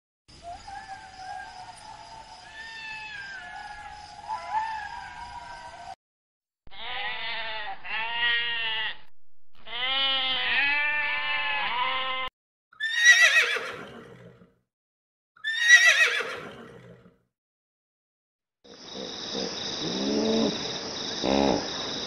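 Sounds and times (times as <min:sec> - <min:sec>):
horse whinnying: 0:09.7 - 0:14.5, 0:15.4 - 0:17.1.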